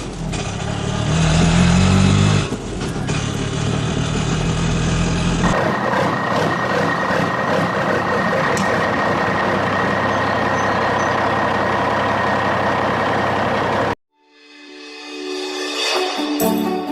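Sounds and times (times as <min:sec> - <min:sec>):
heavy vehicle engine whining: 0:00.0 - 0:14.0
music: 0:14.1 - 0:16.9.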